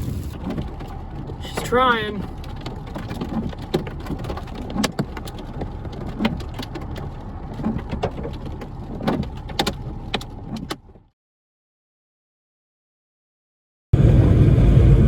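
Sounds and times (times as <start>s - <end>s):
raindrops tapping on vehicle: 0.0s - 11.0s
low rumble of wind and engine: 0.0s - 11.1s, 14.0s - 15.0s.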